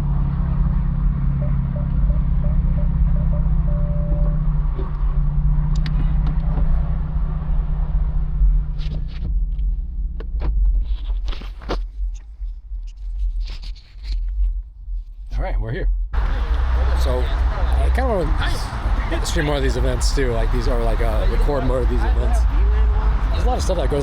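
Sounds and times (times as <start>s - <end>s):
car engine running: 0.0s - 10.7s, 16.2s - 24.0s.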